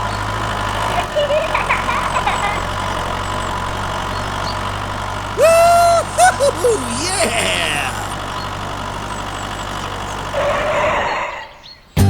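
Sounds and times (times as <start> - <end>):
toy tractor engine humming: 0.0 - 11.6.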